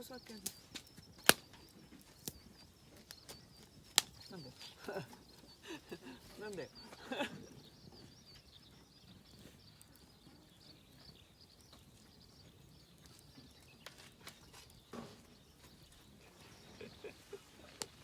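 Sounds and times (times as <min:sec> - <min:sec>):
faint birdsong high chirps: 0:00.0 - 0:18.0
sharp clicks: 0:00.3 - 0:02.4, 0:03.1 - 0:04.3.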